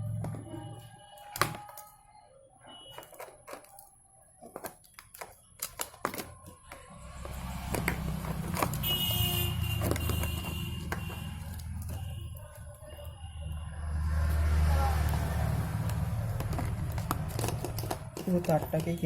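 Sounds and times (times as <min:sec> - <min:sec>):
plastic parts clicking and tapping: 0:00.1 - 0:02.0, 0:02.9 - 0:13.1, 0:15.0 - 0:19.0
low traffic rumble: 0:06.7 - 0:19.0.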